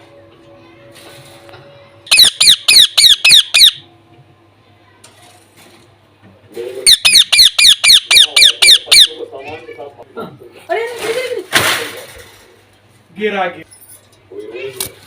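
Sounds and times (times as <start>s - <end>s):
parakeet screeching: 2.1s - 3.8s, 6.8s - 9.3s.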